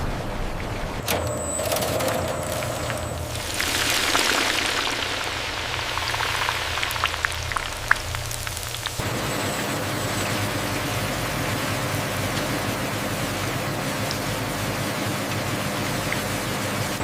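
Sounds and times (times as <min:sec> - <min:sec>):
crackles and pops of frying: 0:03.3 - 0:09.0
food deep-frying in hot oil: 0:03.3 - 0:17.0.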